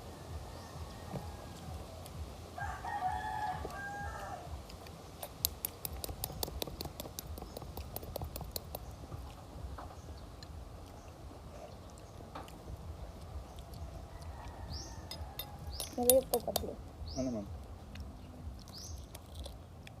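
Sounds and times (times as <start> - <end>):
rooster crowing: 0.0 - 4.6, 13.9 - 15.8
rapid sharp clicks: 4.8 - 9.0.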